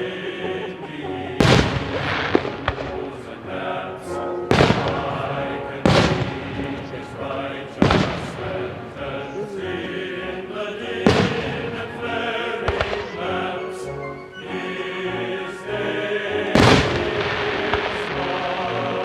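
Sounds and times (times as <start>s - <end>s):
choral singing: 0.0s - 19.0s
fireworks banging: 1.4s - 10.0s, 11.0s - 13.4s, 16.5s - 19.0s.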